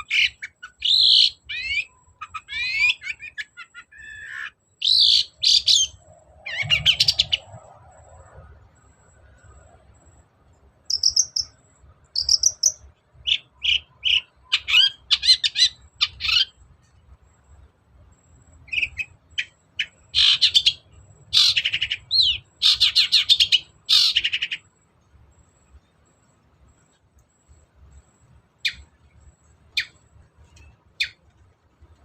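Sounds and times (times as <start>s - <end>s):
shrike singing: 0.0s - 10.2s, 10.8s - 16.6s.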